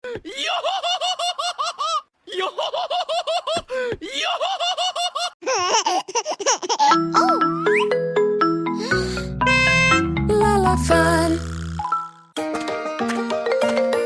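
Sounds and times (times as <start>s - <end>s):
high-pitched cartoon giggling: 0.5s - 3.6s, 4.3s - 8.0s.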